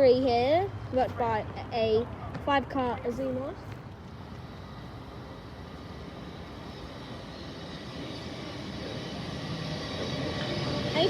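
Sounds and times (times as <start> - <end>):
train approaching hum: 0.0 - 11.0
faint high whine: 3.4 - 11.0.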